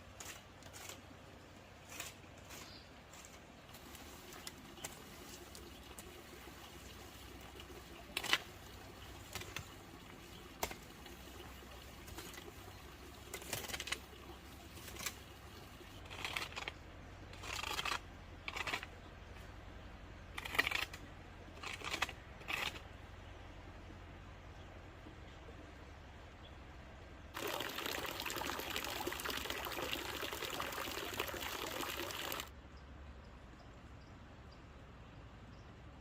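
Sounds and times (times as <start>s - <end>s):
hand work scrapes and clicks: 0.1s - 1.2s, 1.8s - 5.0s, 13.3s - 14.1s, 16.0s - 19.0s, 20.4s - 22.9s.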